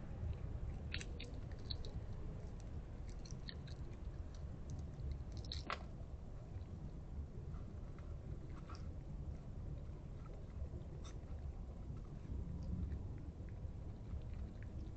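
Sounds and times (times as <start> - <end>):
steady low hum: 0.0 - 14.9
animal crunching hard food: 0.4 - 6.8.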